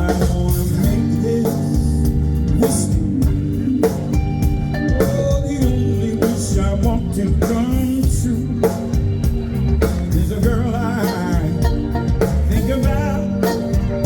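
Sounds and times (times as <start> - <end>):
drums keeping even beat: 0.0 - 14.0
live band playing soul ballad: 0.0 - 14.0
wavering lead line: 0.0 - 14.0.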